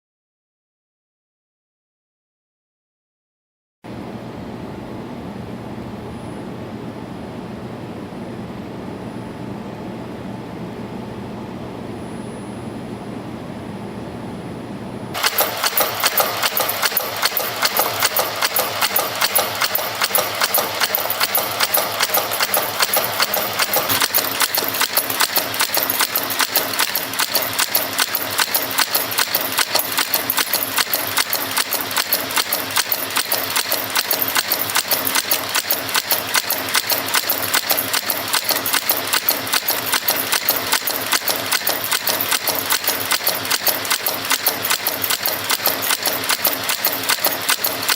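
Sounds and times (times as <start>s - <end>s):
forming machine clattering: 15.2s - 47.9s.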